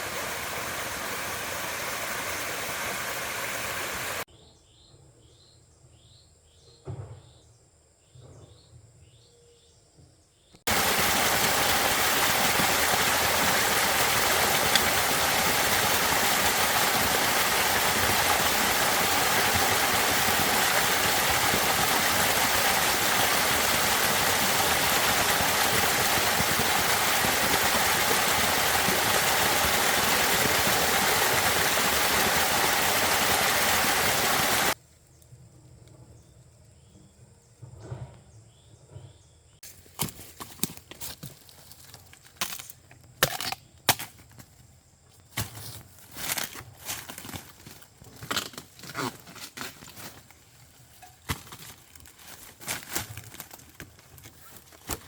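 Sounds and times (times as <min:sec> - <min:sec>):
loud steady rushing noise: 0:00.0 - 0:04.2.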